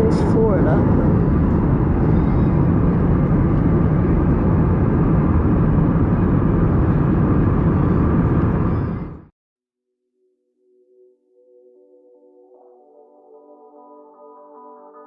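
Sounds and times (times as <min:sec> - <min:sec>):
airliner cabin engine rush: 0:00.0 - 0:09.3.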